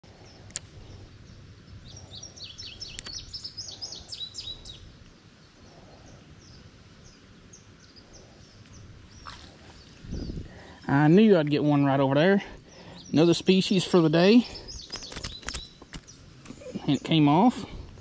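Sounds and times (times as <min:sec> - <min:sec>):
outdoor background hiss: 0:00.0 - 0:18.0
songbird singing: 0:00.0 - 0:18.0
sharp click: 0:02.9 - 0:03.2, 0:14.9 - 0:16.1.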